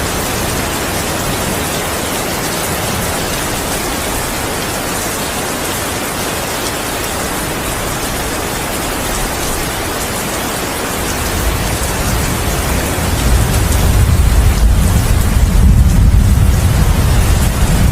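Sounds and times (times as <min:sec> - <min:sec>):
heavy rain falling: 0:00.0 - 0:17.9
deep rumble of thunder: 0:11.1 - 0:17.9.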